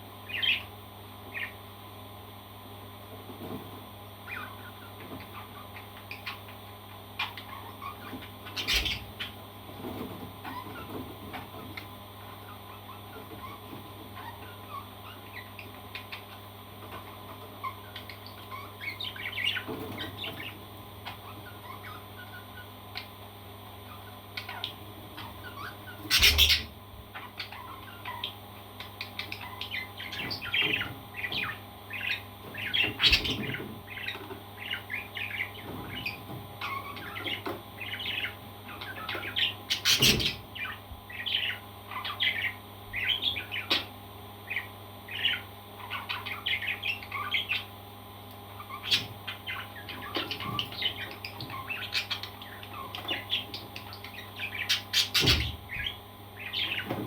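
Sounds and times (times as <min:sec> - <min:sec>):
parrot chirping and chattering: 0:00.2 - 0:00.7, 0:04.2 - 0:09.4, 0:10.0 - 0:47.8, 0:48.4 - 0:57.0.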